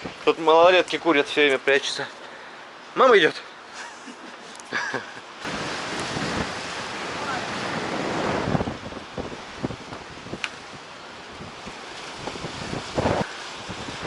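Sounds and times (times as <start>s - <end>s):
sea: 0.0s - 14.0s
wind rushing over microphone: 5.4s - 14.0s.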